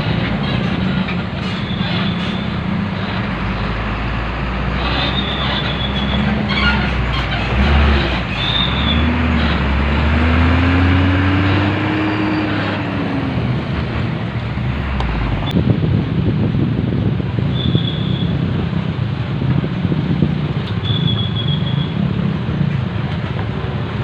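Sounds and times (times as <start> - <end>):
wheels squealing: 0.0 - 15.5, 17.5 - 18.5, 20.6 - 22.3
low engine tone: 0.0 - 24.0.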